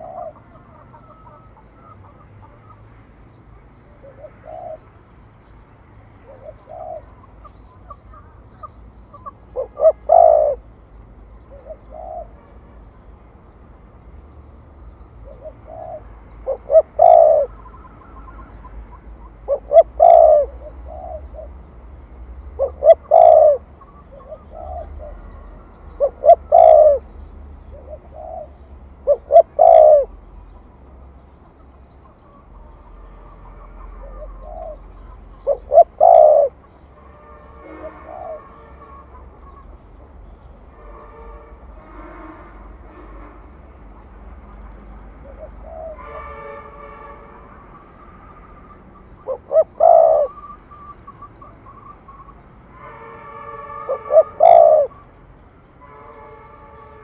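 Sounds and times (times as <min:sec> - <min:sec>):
dove cooing: 0:00.0 - 0:02.8, 0:04.0 - 0:04.9, 0:06.2 - 0:08.4, 0:09.1 - 0:10.7, 0:11.4 - 0:12.4, 0:15.2 - 0:21.6, 0:22.6 - 0:27.1, 0:27.7 - 0:30.2, 0:33.5 - 0:36.7, 0:37.6 - 0:39.7, 0:45.2 - 0:46.4, 0:48.9 - 0:52.2, 0:53.9 - 0:55.0.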